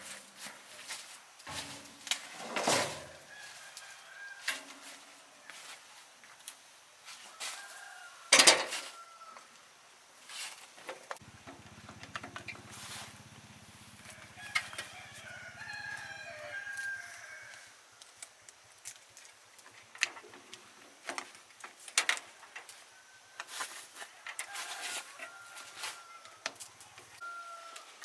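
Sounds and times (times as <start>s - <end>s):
rooster crowing: 2.6s - 5.7s, 7.2s - 9.6s, 13.9s - 17.9s, 22.8s - 28.0s
faint crow-like call: 7.2s - 9.6s, 24.3s - 28.0s.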